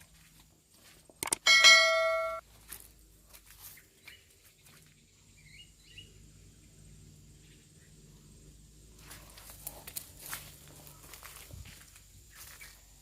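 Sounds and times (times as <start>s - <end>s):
metallic clang ringing: 1.3s - 2.4s.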